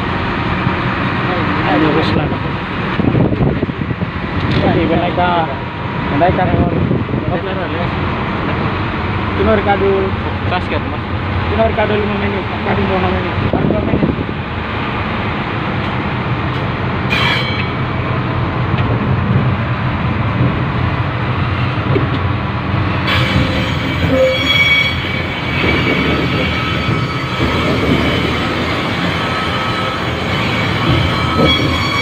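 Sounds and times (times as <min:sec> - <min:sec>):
train wheels rumbling on rail: 0:00.0 - 0:32.0
thin high squeals: 0:23.1 - 0:32.0.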